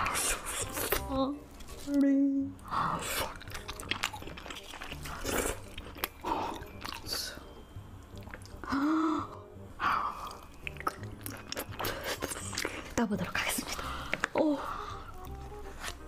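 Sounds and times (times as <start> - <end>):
person chewing crunchy food: 2.9 - 8.7, 10.2 - 13.0
mouth clicks: 10.2 - 12.8.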